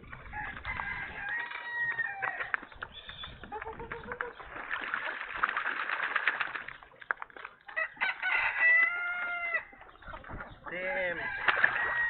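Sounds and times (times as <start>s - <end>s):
rooster crowing: 0.3s - 2.4s, 7.8s - 9.7s, 11.1s - 12.0s.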